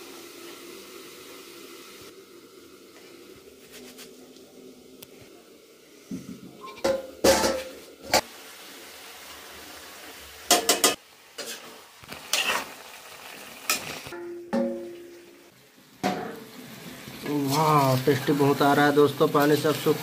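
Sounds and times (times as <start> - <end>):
utensils clanking against pan: 6.6 - 8.2, 10.5 - 12.7, 13.6 - 15.3
chicken frying in a pan: 7.6 - 14.4, 15.1 - 20.0.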